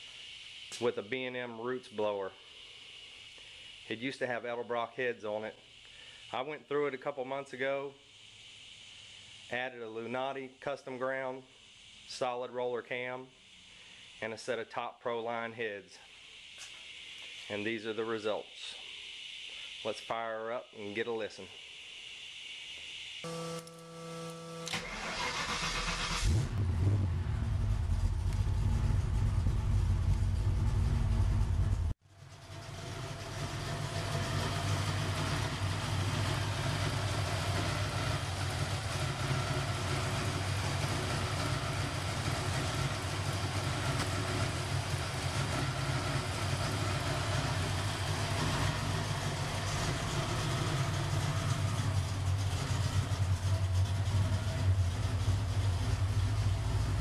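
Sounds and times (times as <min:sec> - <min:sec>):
car engine starting and running: 0:23.3 - 0:57.0.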